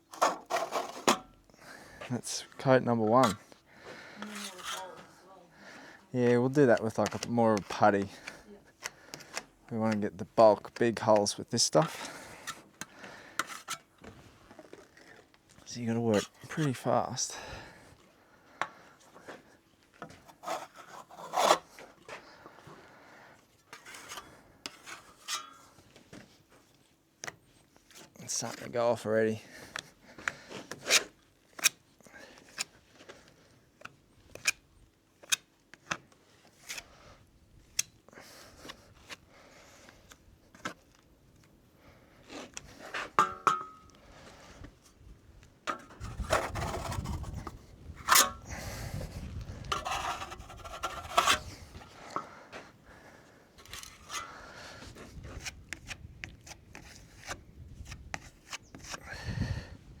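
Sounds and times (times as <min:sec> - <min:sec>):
spreader scraping filler on wood: 0:00.1 - 0:01.4, 0:03.0 - 0:03.5, 0:04.2 - 0:05.2, 0:11.9 - 0:13.9, 0:20.0 - 0:21.8, 0:23.7 - 0:25.8, 0:45.7 - 0:52.4, 0:53.6 - 0:57.4.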